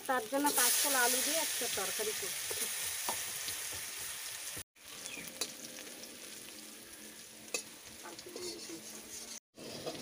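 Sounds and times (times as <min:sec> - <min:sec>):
potatoes sizzling in hot oil: 0:00.0 - 0:10.0.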